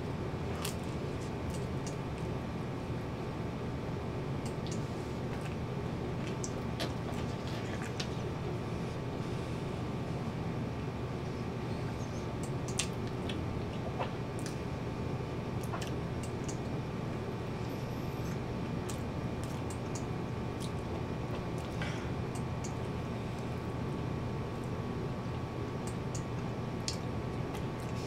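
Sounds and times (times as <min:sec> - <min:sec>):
background hum and hiss: 0:00.0 - 0:28.0
person chewing with mouth clicks: 0:06.2 - 0:08.3.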